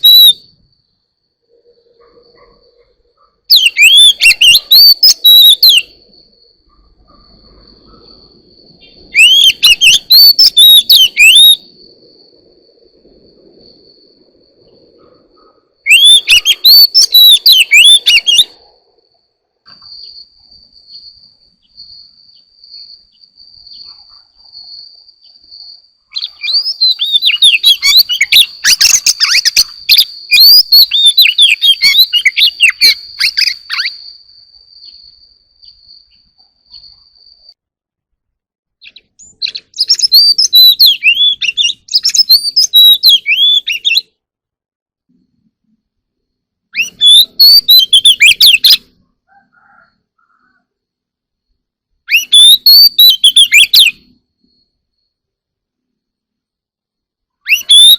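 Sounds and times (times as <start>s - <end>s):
bird singing whistles and chatter: 0.0s - 0.5s, 3.5s - 6.0s, 8.8s - 11.8s, 15.9s - 18.6s, 26.1s - 34.0s, 38.8s - 44.0s, 46.8s - 48.9s, 52.1s - 54.1s, 57.5s - 57.9s.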